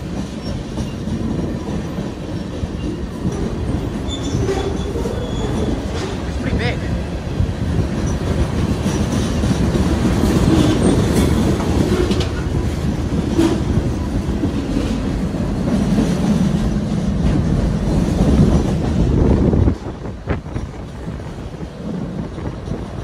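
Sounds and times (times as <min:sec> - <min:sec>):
steel wheels rumbling on rail: 0:00.0 - 0:23.0
wheels clickety-clack over joints: 0:00.0 - 0:23.0
brief wheel squeals: 0:03.7 - 0:06.1.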